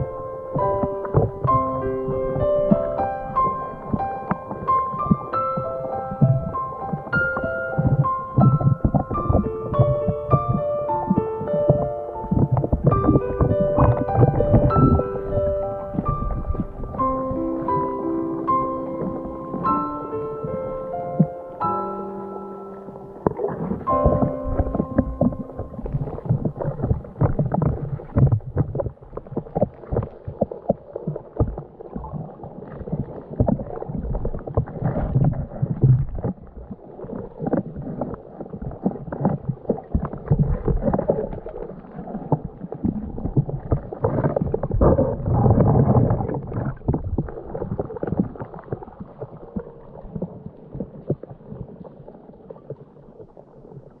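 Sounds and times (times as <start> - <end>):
muffled water sloshing underwater: 0.0 - 54.0
low knocks and rumbles: 0.6 - 20.0.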